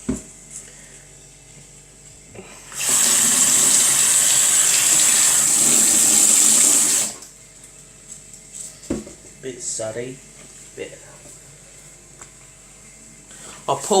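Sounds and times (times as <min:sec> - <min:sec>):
tap water running into sink: 0:02.7 - 0:07.3.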